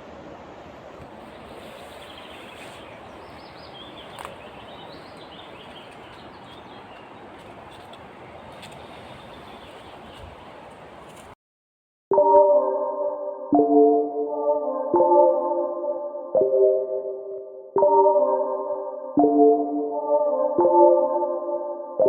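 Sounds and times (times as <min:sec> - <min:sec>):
outdoor background hiss: 0:00.0 - 0:11.4
small bird chirping: 0:01.5 - 0:07.3.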